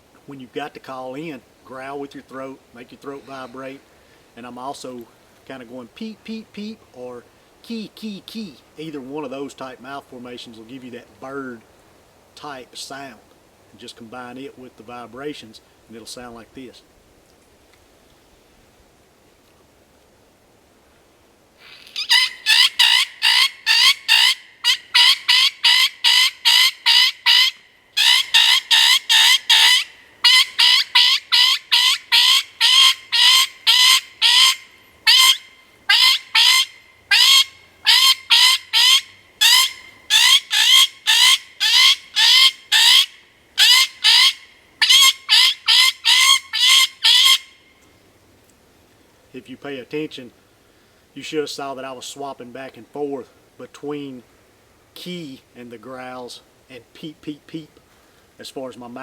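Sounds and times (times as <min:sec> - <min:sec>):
predator call bird distress squeals: 0:21.6 - 0:47.8.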